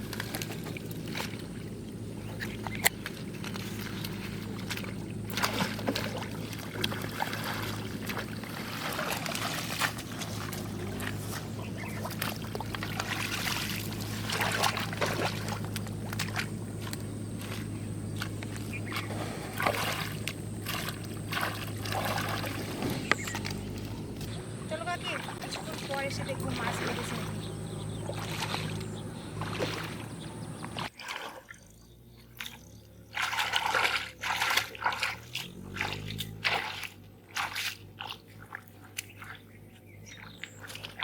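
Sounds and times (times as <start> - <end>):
steady low hum: 0.0 - 31.0
water sloshing and splashing: 0.0 - 41.0.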